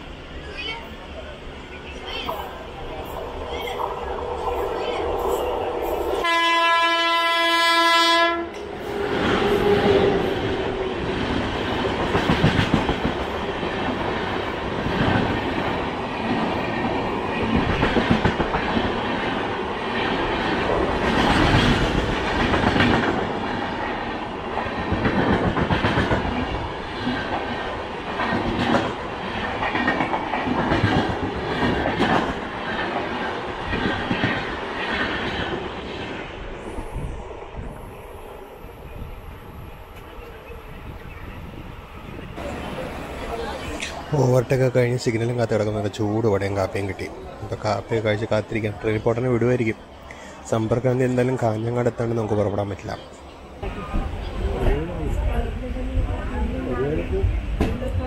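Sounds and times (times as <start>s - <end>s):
locomotive horn blast: 6.2s - 8.6s.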